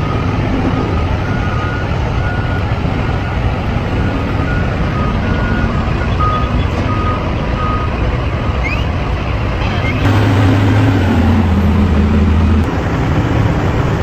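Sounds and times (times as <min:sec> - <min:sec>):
reversing alarm beeps: 0:00.0 - 0:09.0
truck engine running: 0:00.0 - 0:14.0.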